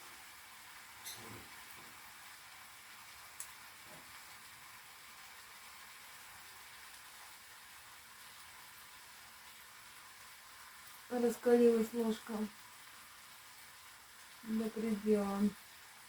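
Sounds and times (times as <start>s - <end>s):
vegetables sizzling in a pan: 0.0s - 16.0s.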